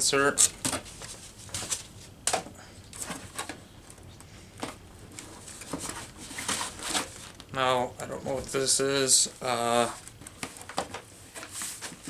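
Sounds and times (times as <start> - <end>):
foam and cardboard rustling: 0.1 - 12.0.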